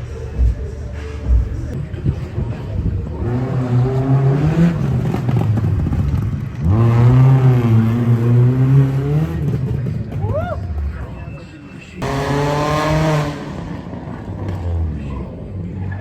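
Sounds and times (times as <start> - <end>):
car engine revving hard: 3.1 - 9.8, 12.0 - 15.0.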